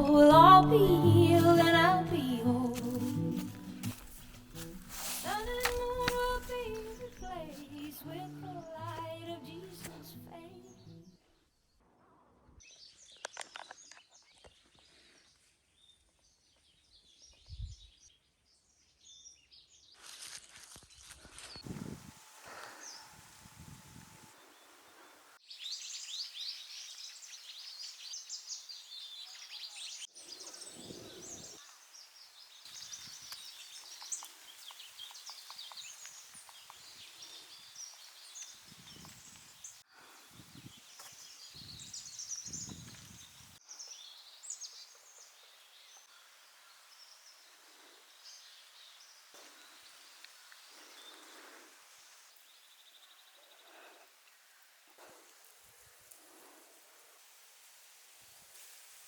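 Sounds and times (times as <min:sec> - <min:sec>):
small birds chirping: 0:12.6 - 0:57.4
wind rumble on microphone: 0:17.4 - 0:17.9, 0:21.6 - 0:22.2, 0:23.1 - 0:24.3, 0:40.3 - 0:43.6.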